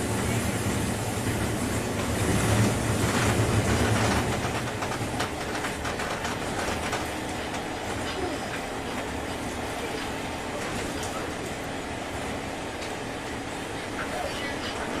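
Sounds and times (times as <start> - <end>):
wheels clacking over rail joints: 0.0 - 11.5
train interior rumble and hum: 0.0 - 15.0.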